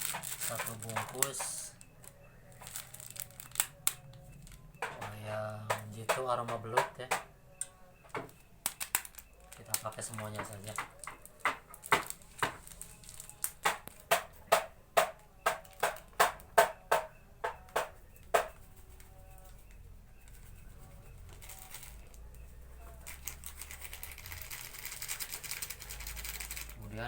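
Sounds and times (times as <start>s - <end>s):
taps on a mixing bowl: 4.8s - 7.3s, 13.6s - 18.6s.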